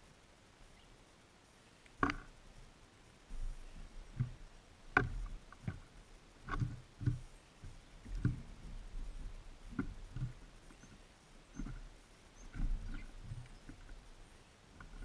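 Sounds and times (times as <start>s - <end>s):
birds pecking on a feeder: 3.6s - 15.0s.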